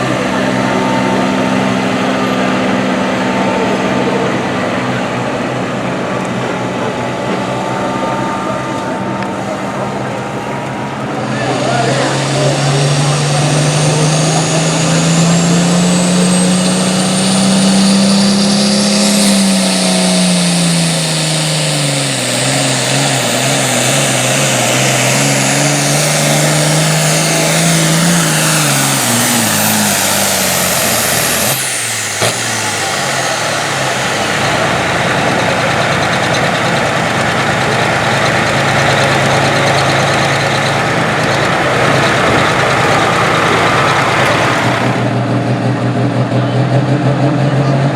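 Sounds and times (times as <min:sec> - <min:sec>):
diesel tractor engine at full throttle: 0:00.0 - 0:47.9
high turbo whine: 0:00.0 - 0:47.9
sharp throttle pop: 0:11.4 - 0:45.4.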